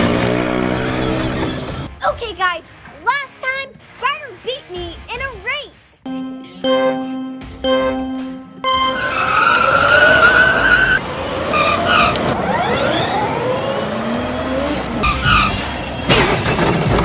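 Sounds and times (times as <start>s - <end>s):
chiming musical notes: 6.1s - 9.8s
tyres screeching: 8.7s - 12.2s.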